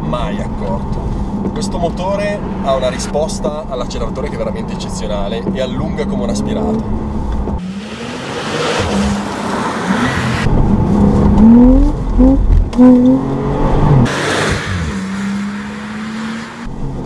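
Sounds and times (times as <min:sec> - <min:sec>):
car engine accelerating hard: 0:05.8 - 0:17.0.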